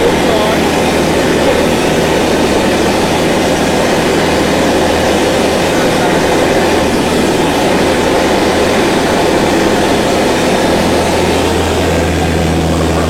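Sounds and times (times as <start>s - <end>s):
low hum: 0.0s - 13.0s
vehicle running steadily: 0.0s - 13.0s.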